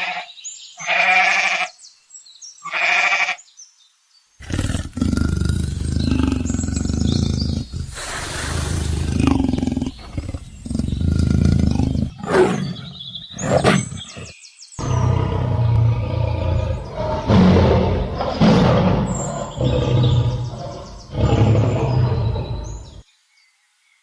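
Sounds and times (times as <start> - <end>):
big cat roaring: 4.4 - 23.0.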